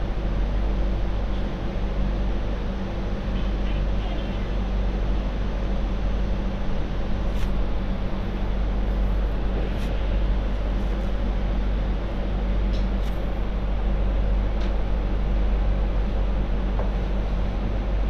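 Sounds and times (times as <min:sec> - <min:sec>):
light rail train rumbling: 0:00.0 - 0:18.0.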